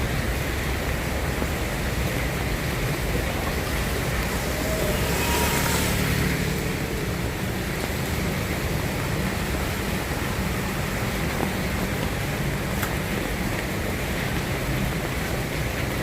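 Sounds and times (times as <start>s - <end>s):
soft rain falling: 0.0s - 16.0s
faint thin tone: 4.2s - 6.9s.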